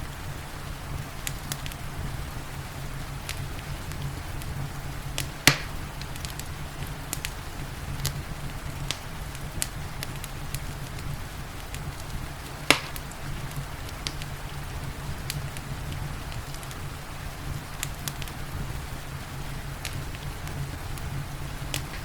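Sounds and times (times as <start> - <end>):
soft hiss of rain: 0.0 - 22.0
wood fire crackling: 0.0 - 22.0
sharp pops: 5.1 - 7.4, 9.6 - 14.3, 19.8 - 22.0.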